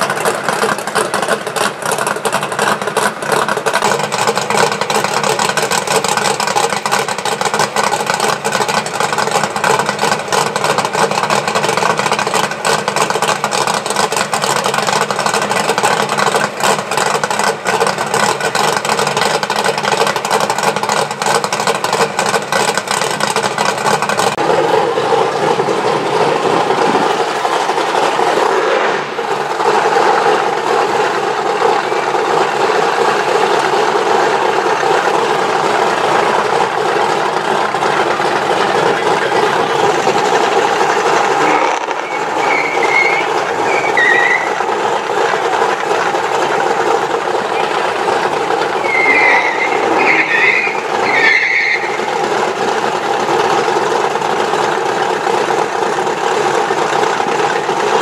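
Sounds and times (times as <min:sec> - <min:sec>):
drag racing car engines: 0:00.0 - 0:58.0.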